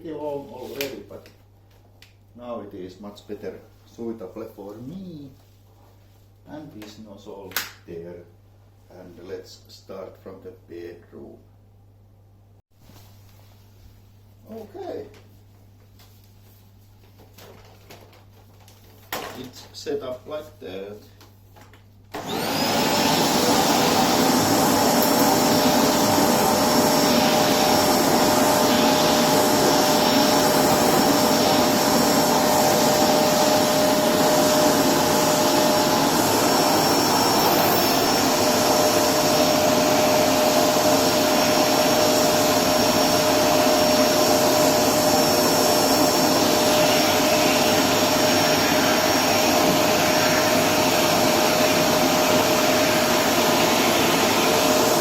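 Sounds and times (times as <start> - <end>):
vacuum cleaner motor whining: 22.1 - 55.0.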